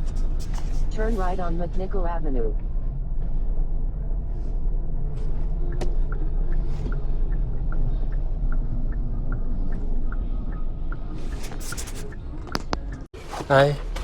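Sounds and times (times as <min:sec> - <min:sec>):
turn signal ticking: 0:00.0 - 0:13.1.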